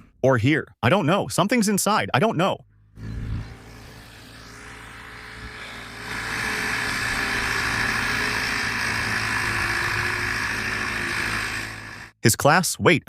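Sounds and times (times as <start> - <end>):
water pump running: 3.5 - 12.2.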